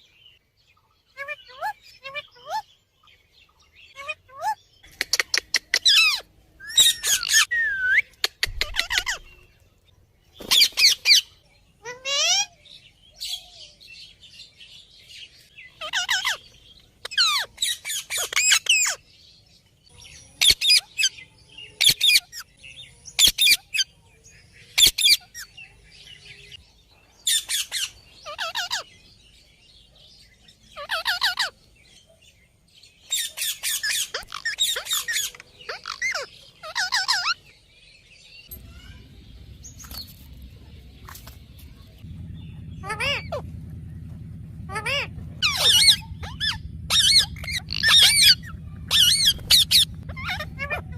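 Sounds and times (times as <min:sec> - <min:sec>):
parrot squawking: 0:01.2 - 0:02.7, 0:03.9 - 0:09.4, 0:10.5 - 0:12.6, 0:15.8 - 0:19.0, 0:27.3 - 0:28.9, 0:30.8 - 0:31.6, 0:33.1 - 0:37.4, 0:42.7 - 0:43.4, 0:44.7 - 0:50.9.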